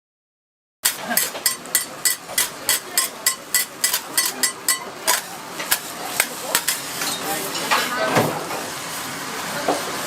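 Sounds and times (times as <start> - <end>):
utensil clinking on metal cookware: 0.8 - 8.0.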